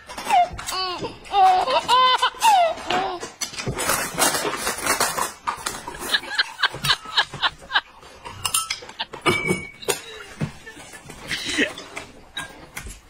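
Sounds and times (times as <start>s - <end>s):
tableware clinking: 3.4s - 12.9s.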